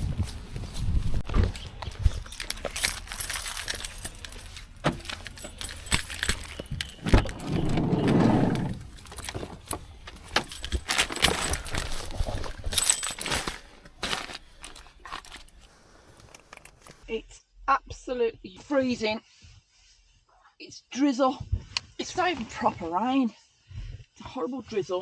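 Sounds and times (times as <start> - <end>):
rustling: 0.0 - 17.0
small metal items jangling: 0.3 - 17.0.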